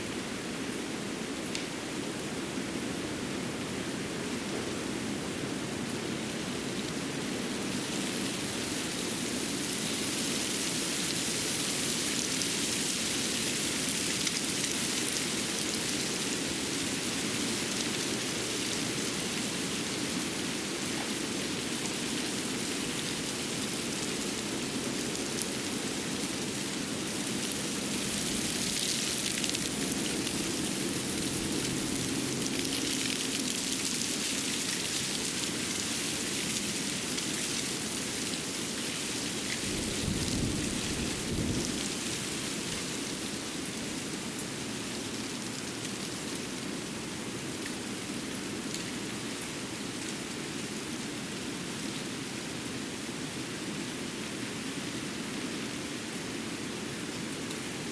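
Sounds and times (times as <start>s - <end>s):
water hissing with patter: 5.6s - 52.8s.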